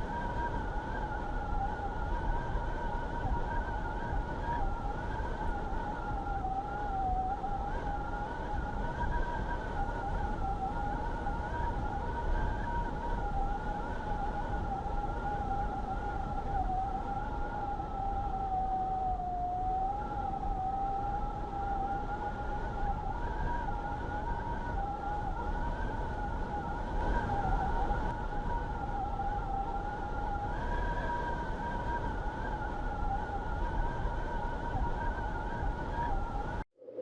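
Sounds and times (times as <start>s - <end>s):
low rush of wind: 0.0s - 37.0s
wind howling and whistling: 0.0s - 37.0s.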